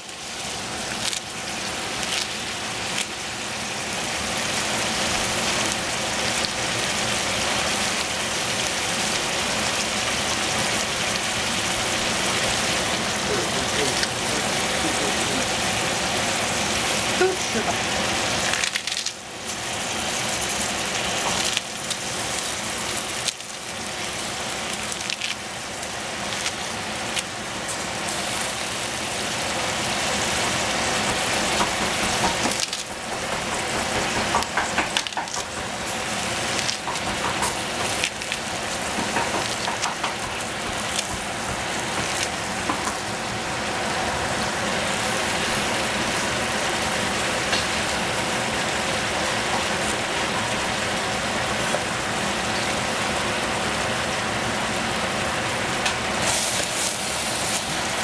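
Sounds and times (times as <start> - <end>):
food sizzling in a pot: 0.0 - 58.0
cabbage leaves tearing: 0.7 - 3.2, 18.4 - 23.6, 24.5 - 27.4, 30.8 - 42.6.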